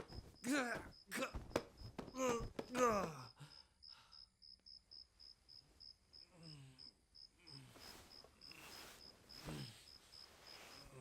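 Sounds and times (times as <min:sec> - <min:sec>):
crickets chirping: 0:02.7 - 0:11.0
soft rustling: 0:07.7 - 0:11.0.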